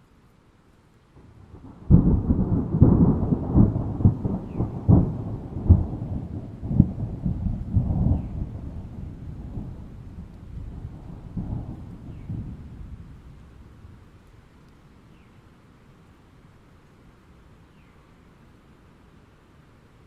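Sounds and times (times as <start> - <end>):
rain hissing: 0.0 - 20.0
thunder rumbling and cracking: 1.2 - 14.1.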